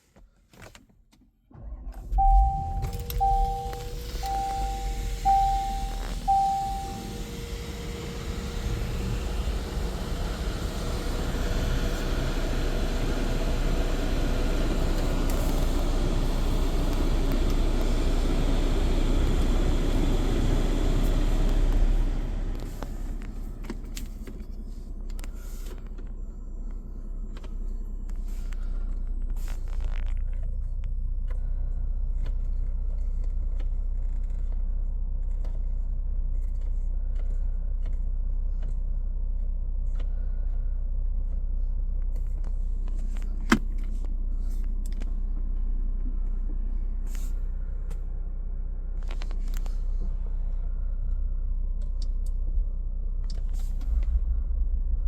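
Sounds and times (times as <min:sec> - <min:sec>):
car engine idling: 0:01.5 - 0:55.0.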